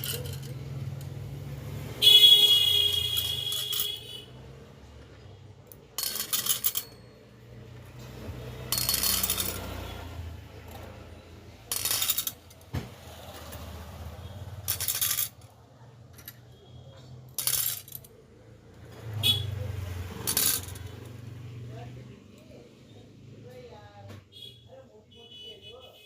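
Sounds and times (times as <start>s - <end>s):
bangles clinking and jingling: 0.0s - 1.4s, 2.5s - 4.2s, 5.1s - 12.7s, 13.3s - 15.5s, 16.1s - 18.2s, 20.0s - 21.3s.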